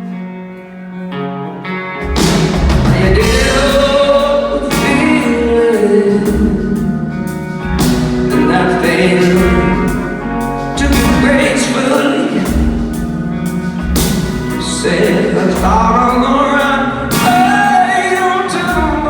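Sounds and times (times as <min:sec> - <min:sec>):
bass guitar: 0:00.0 - 0:19.0
electric guitar: 0:00.0 - 0:19.0
drums: 0:01.9 - 0:19.0
person singing: 0:02.4 - 0:19.0.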